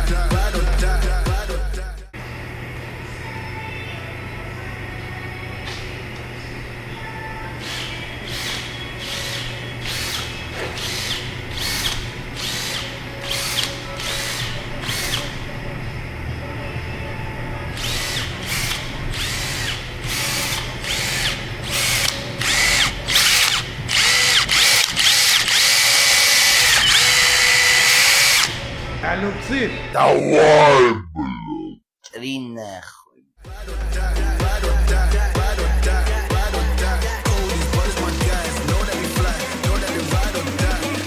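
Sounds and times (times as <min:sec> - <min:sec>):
handheld power tool whining: 0:07.6 - 0:15.5, 0:17.7 - 0:28.8.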